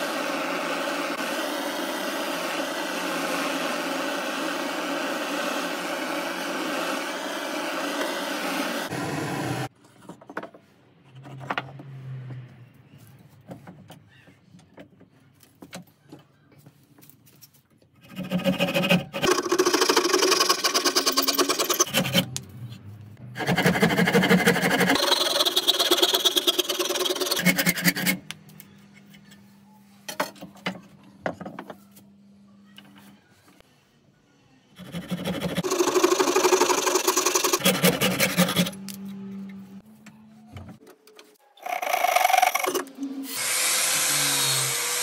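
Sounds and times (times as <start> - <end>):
small electric power tool running: 0.0 - 9.7, 19.2 - 22.2, 34.8 - 38.8, 41.6 - 45.0.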